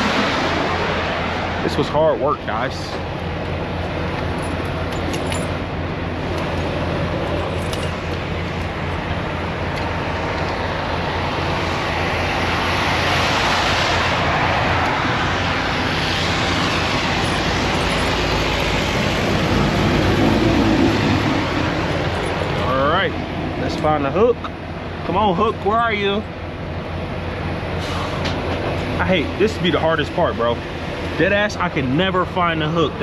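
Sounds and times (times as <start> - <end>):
tyres hissing on wet road: 0.0 - 1.6, 11.6 - 17.6, 27.7 - 29.0
vehicle passing: 0.0 - 3.0, 8.3 - 24.2
low traffic rumble: 0.0 - 33.0.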